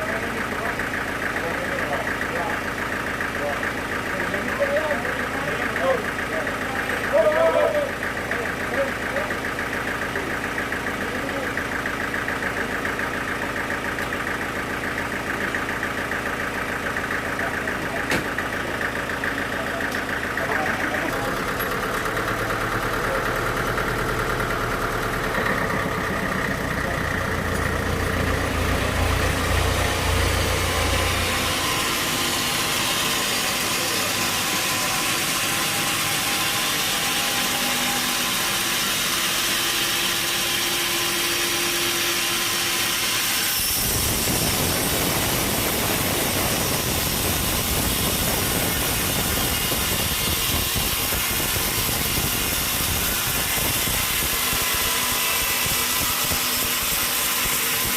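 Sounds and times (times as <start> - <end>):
sawmill machinery running: 0.0 - 57.9.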